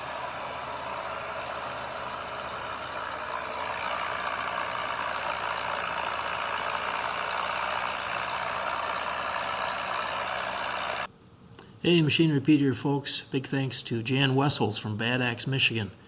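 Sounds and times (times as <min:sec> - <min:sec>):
tractor engine under load: 0:00.0 - 0:11.1.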